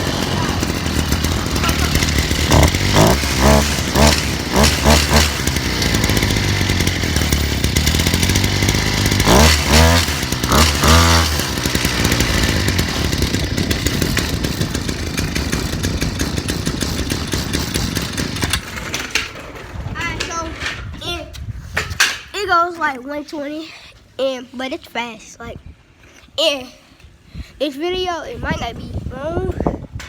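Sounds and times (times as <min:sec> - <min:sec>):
dirt bike engine revving: 0:00.0 - 0:18.9.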